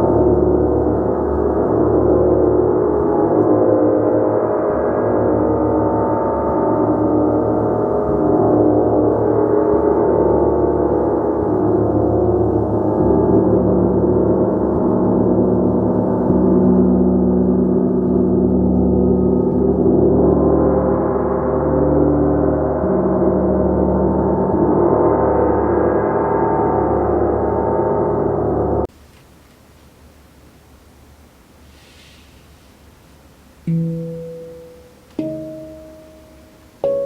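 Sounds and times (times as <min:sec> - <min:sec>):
gong ringing: 0:33.7 - 0:37.0.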